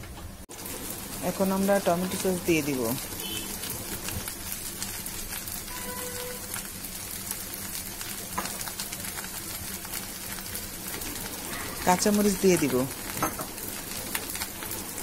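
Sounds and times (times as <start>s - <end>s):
rice sizzling in a pan: 0.5s - 15.0s.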